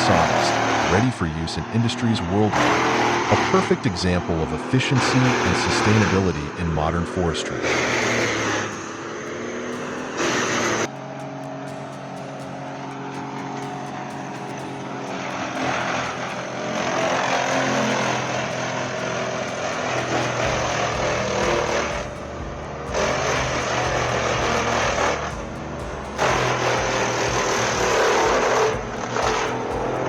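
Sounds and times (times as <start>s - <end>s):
wood grinder engine drone: 0.0s - 30.0s.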